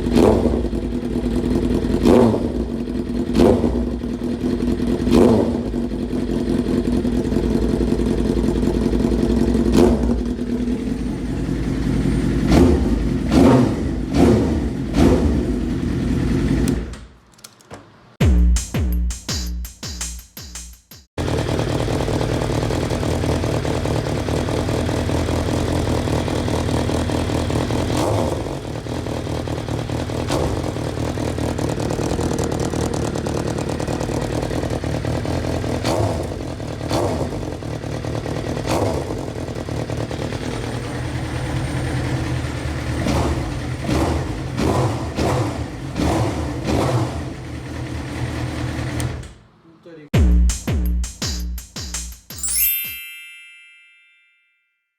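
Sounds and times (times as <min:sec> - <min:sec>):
motorcycle engine idling: 0:00.0 - 0:16.9, 0:21.2 - 0:49.2
music: 0:18.2 - 0:21.1, 0:50.2 - 0:53.2.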